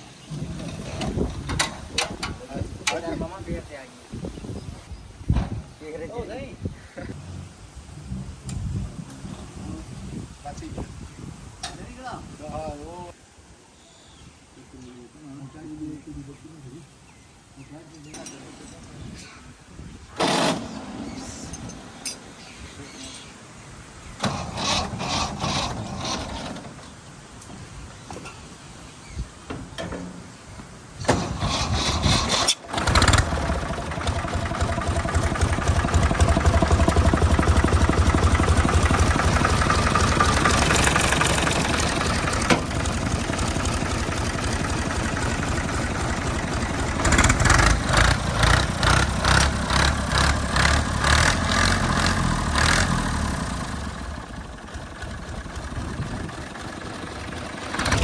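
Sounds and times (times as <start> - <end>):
tractor engine running: 0.1 - 3.6, 24.2 - 26.9, 31.0 - 58.0.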